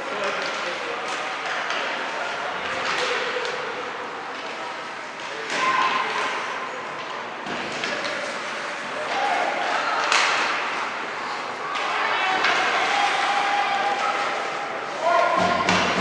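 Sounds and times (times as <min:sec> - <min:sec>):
indistinct voices in a rink: 0:00.0 - 0:16.0
hockey sticks and puck knocking: 0:10.0 - 0:10.8, 0:15.2 - 0:16.0.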